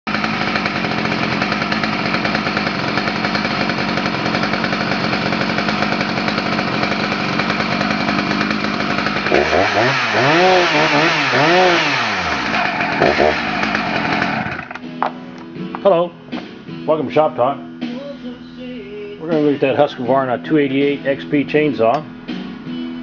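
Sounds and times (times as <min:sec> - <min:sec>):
chainsaw engine running: 0:00.1 - 0:14.9.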